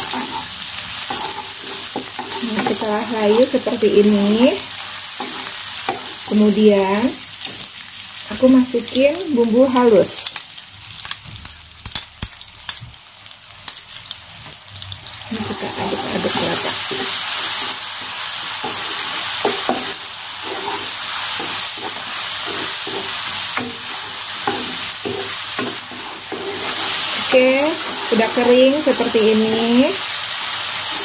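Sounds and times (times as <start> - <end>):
spatula stirring against a pan: 0.0 - 6.6, 15.3 - 31.0
paste sizzling in oil: 0.0 - 11.2, 15.1 - 31.0.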